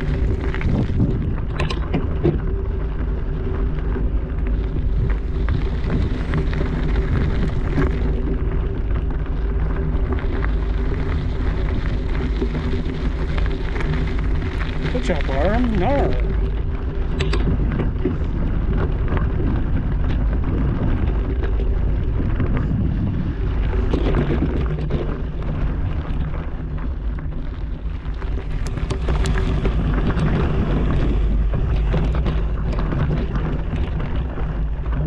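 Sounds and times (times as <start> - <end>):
bike rattling and knocking: 0.0 - 35.0
wind buffeting microphone: 0.0 - 35.0.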